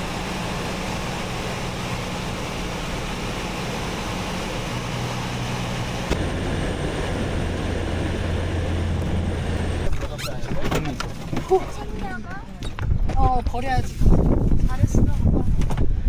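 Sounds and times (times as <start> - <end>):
light plane engine drone: 0.0 - 10.0.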